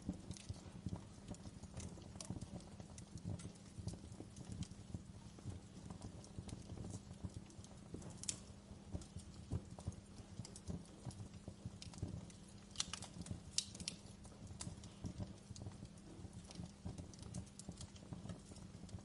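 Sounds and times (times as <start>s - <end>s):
fire crackling: 0.0s - 19.0s
fire pops and snaps: 0.0s - 19.0s
low rumble of fire: 0.0s - 19.0s.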